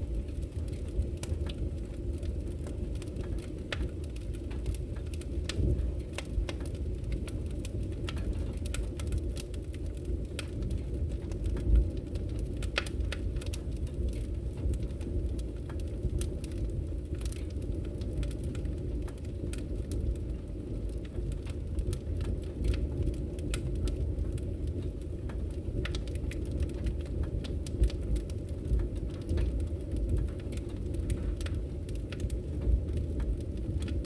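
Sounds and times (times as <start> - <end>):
fire flames rumbling: 0.0 - 34.0
wood fire crackling and popping: 0.0 - 34.0.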